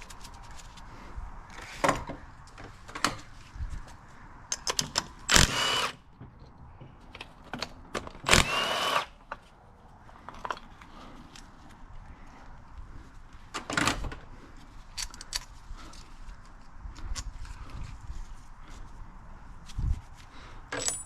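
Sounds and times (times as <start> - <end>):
metal tools clinking: 20.7 - 21.0.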